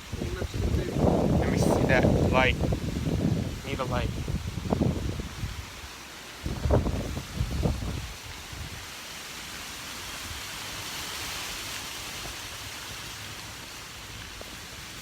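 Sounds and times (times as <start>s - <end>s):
strong storm wind hissing: 0.0s - 9.0s
wind rumble on microphone: 0.0s - 9.0s.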